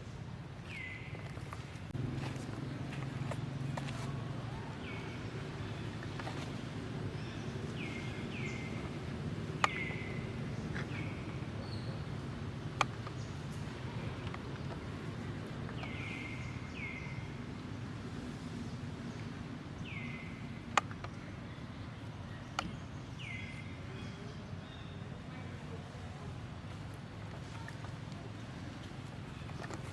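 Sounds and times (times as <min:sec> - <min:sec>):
low background noise: 0:00.0 - 0:29.9.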